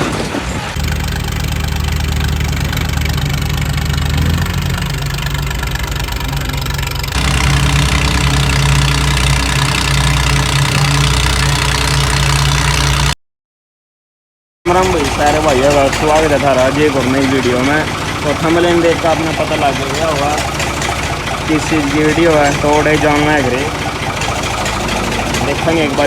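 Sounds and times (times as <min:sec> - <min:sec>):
tractor diesel engine running: 0:00.0 - 0:13.2, 0:14.7 - 0:26.0.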